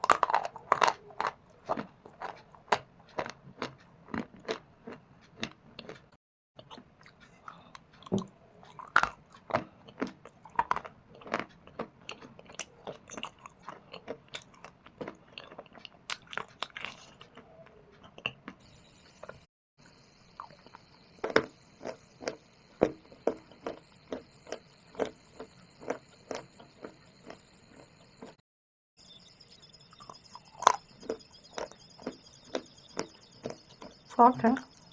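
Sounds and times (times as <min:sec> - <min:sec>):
crunching stone and clay: 0:00.0 - 0:06.0.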